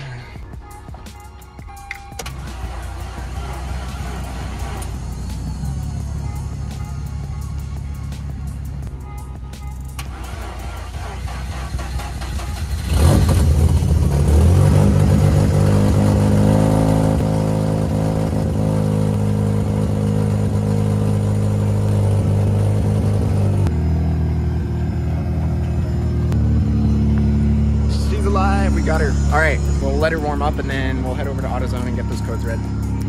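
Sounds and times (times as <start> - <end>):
engine fast idle: 2.2 - 7.4, 10.0 - 14.1
rotary engine starting: 10.0 - 15.2.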